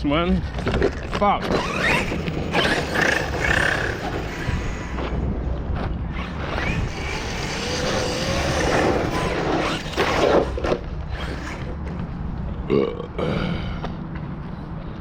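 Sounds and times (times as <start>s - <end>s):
steady rumbling noise: 0.0s - 15.0s
rc truck motor wavering: 1.4s - 5.4s, 6.1s - 11.8s.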